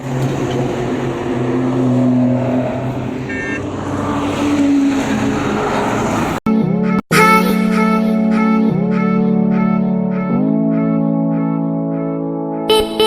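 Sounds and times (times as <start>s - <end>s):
motorcycle engines revving: 0.0s - 6.4s
brief high tone: 12.7s - 13.0s.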